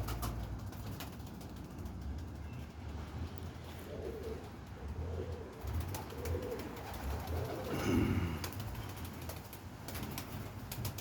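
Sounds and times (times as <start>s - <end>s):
pigeons cooing: 3.6s - 9.2s.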